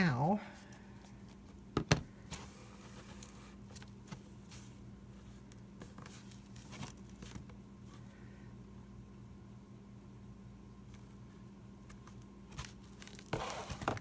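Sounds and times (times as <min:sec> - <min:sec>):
steady low hum: 0:00.0 - 0:14.0
paper pages rustling: 0:02.3 - 0:07.5.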